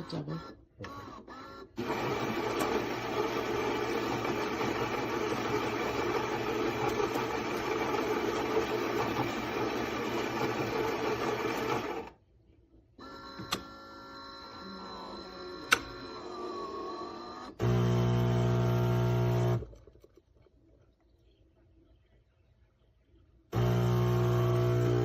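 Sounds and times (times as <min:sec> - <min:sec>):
grinder grinding coffee beans: 0:01.8 - 0:12.1, 0:14.5 - 0:19.8, 0:23.6 - 0:25.0.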